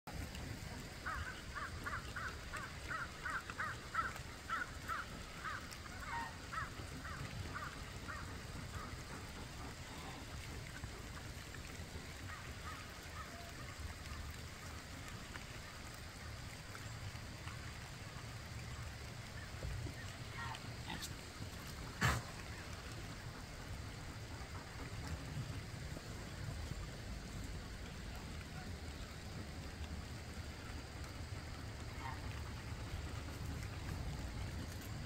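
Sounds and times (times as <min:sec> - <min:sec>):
steady low rumble: 0:13.7 - 0:35.0.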